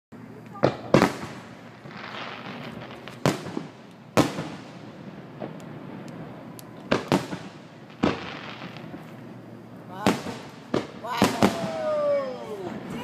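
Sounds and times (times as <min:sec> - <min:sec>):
firework shells bursting: 0:00.5 - 0:09.3.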